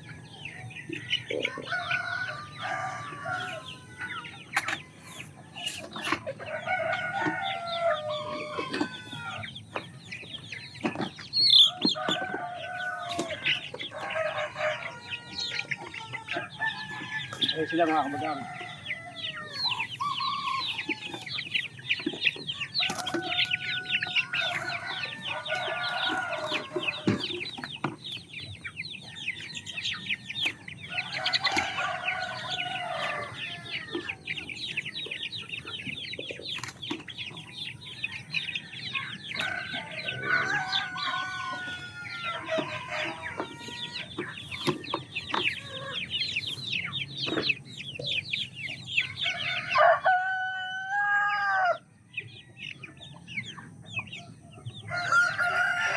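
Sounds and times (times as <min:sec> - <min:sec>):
chickens clucking: 0:00.0 - 0:55.9
rooster crowing: 0:01.6 - 0:04.2, 0:22.7 - 0:27.3, 0:31.0 - 0:33.9, 0:38.7 - 0:44.0, 0:49.2 - 0:51.8, 0:54.9 - 0:55.9.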